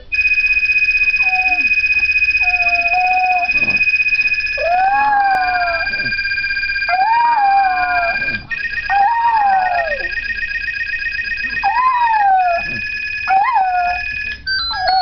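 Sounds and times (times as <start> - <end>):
phone ringtone beeping: 0.1 - 15.0
dog howling: 2.4 - 3.8, 4.6 - 6.2, 6.9 - 10.2, 11.6 - 14.1.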